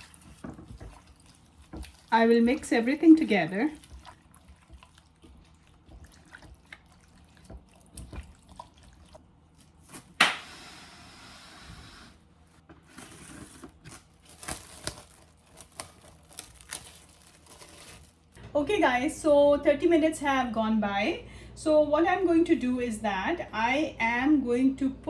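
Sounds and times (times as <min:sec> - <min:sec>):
hands squelching raw chicken: 0:00.0 - 0:10.3.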